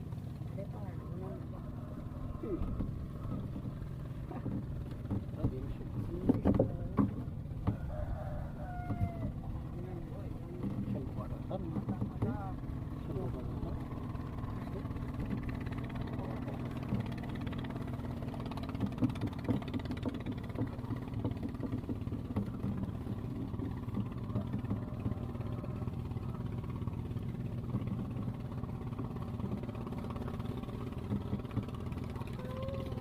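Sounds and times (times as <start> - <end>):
engine droning: 0.0 - 33.0.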